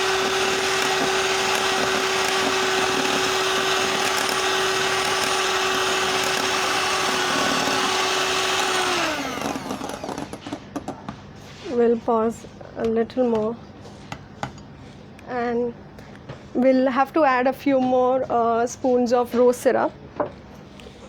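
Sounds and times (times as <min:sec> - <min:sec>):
electric mixer motor whine: 0:00.0 - 0:10.6.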